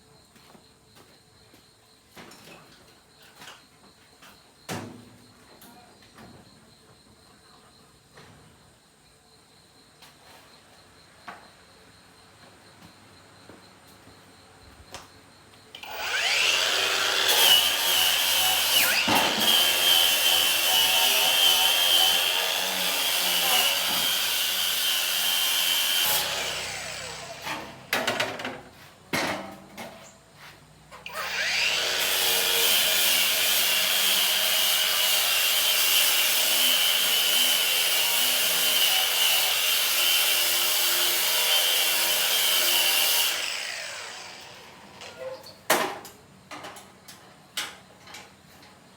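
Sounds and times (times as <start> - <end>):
electric power tool running: 15.8 - 28.2, 31.0 - 45.1.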